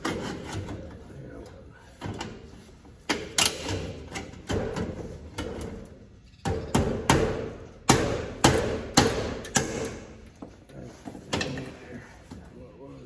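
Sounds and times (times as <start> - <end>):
hammer striking a block: 6.4 - 10.0.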